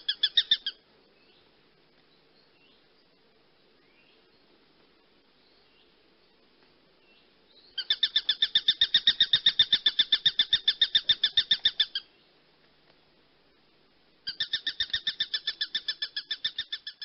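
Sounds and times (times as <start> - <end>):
bird chattering: 0.0 - 0.8, 7.8 - 12.1, 14.3 - 17.0
faint bird chirps: 0.0 - 12.4, 14.2 - 17.0.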